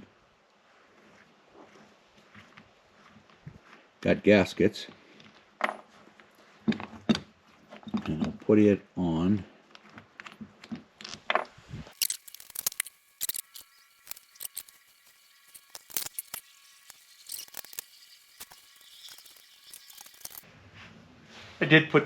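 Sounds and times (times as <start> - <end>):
metal parts and tools clinking: 11.9 - 20.4.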